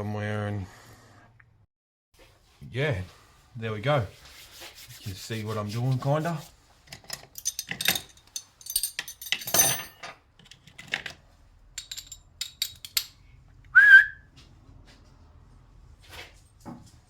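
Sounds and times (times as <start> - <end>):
short rising whistle: 13.7 - 14.3.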